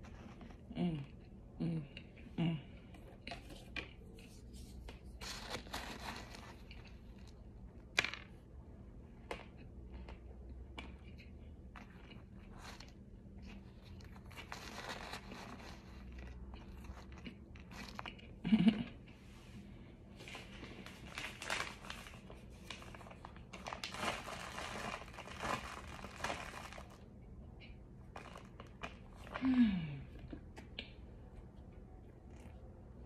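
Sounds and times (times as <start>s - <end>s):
person chewing crunchy food: 9.3s - 18.4s.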